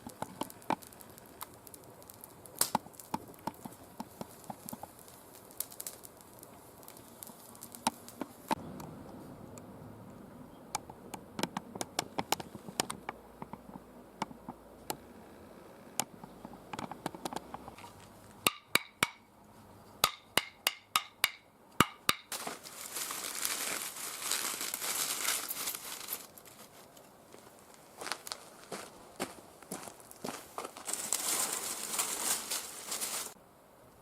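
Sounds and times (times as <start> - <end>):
crinkling rustle: 0.0 - 8.6, 22.3 - 33.4
twigs snapping: 0.0 - 8.6, 21.8 - 27.1.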